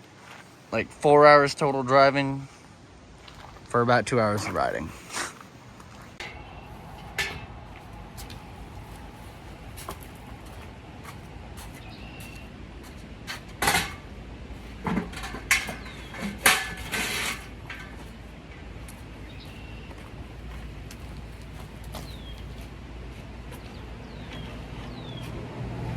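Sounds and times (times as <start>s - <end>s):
low steady background noise: 0.0s - 25.6s
knocks and clatter: 14.8s - 18.2s.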